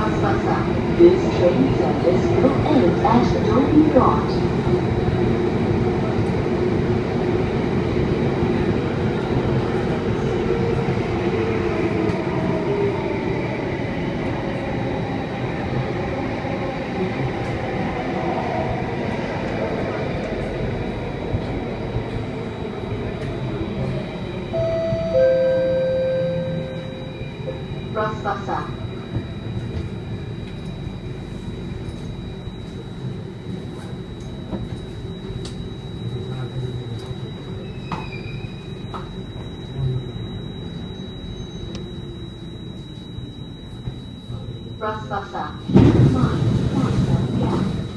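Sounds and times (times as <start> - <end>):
metro train wheels rumbling: 0.0 - 47.9
faint hum: 20.3 - 47.9
thin high whine: 24.5 - 45.5.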